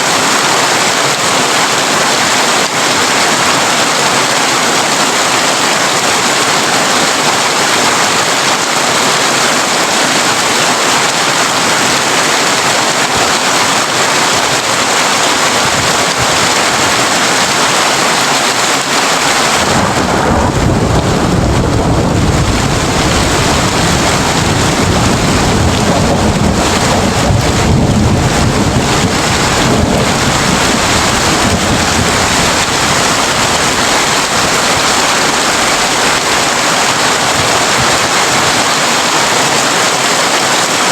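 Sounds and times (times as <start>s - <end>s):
heavy rain on a tin roof: 0.0s - 40.9s
rolling thunder rumble: 19.4s - 37.8s.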